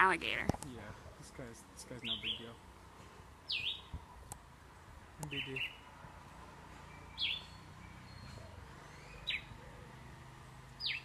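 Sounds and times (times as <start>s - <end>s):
bird whistling downward notes: 7.0s - 9.6s.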